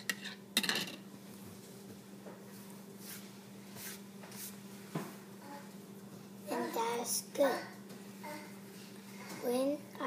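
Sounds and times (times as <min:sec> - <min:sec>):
soft brushing swishes: 0:02.5 - 0:04.8.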